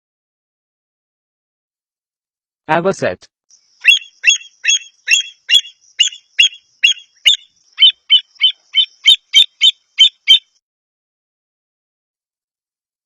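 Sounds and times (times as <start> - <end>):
avocet calling: 3.5 - 10.6.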